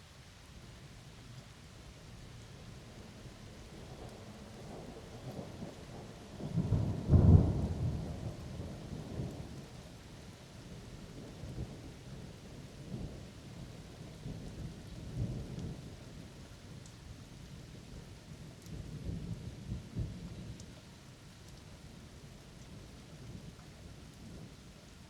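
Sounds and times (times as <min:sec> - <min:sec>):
steady rain: 0:00.0 - 0:25.0
thunder cracking and rumbling: 0:04.7 - 0:09.6.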